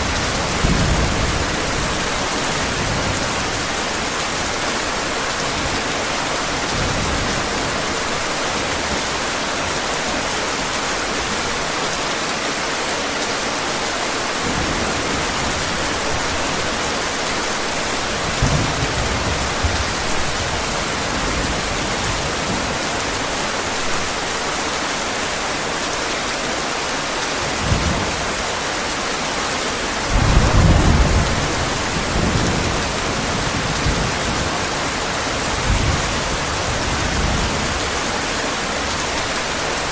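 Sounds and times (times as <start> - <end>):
low thunder rumbling: 0.0 - 3.7, 30.0 - 38.0
heavy rain hissing: 0.0 - 39.9.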